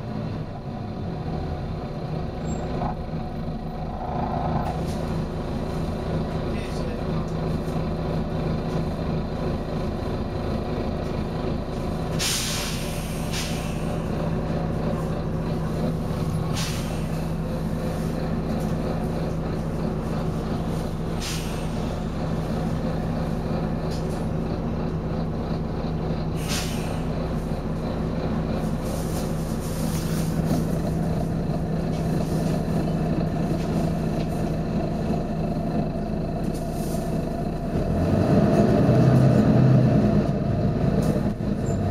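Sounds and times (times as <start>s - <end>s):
bus diesel engine running: 0.0s - 41.9s
compressed air hisses: 12.2s - 14.0s, 16.5s - 17.2s, 21.2s - 21.9s, 26.4s - 27.1s.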